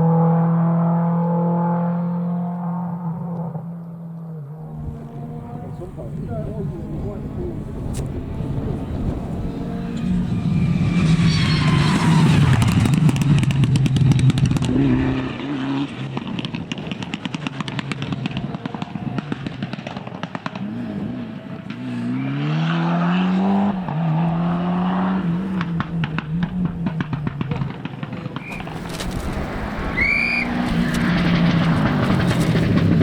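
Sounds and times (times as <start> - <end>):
rally car engine at full throttle: 0.0 - 33.0
gear change: 4.6 - 15.3, 25.2 - 33.0
rapid engine crackle: 25.5 - 33.0.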